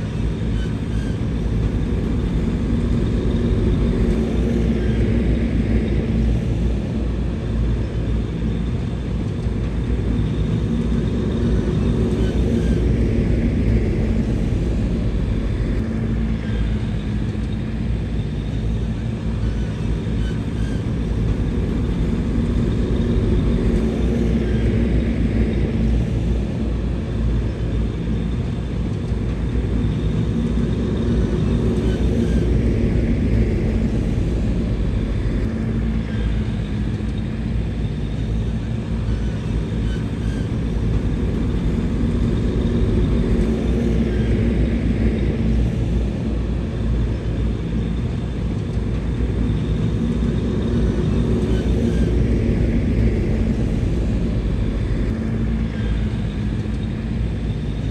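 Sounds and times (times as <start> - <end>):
bulldozer diesel engine rumbling: 29.4 - 48.4, 49.0 - 57.9.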